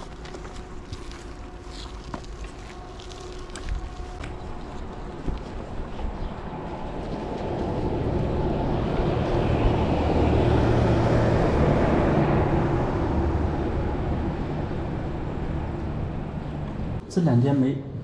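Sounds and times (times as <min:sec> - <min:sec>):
vehicle passing by: 0:06.4 - 0:17.0.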